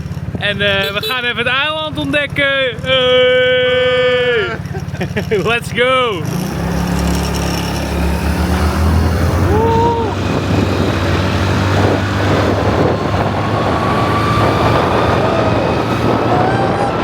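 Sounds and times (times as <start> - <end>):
motor scooter engine running: 0.0 - 17.0
road and wind noise: 0.0 - 17.0
thin rising whine: 6.4 - 17.0.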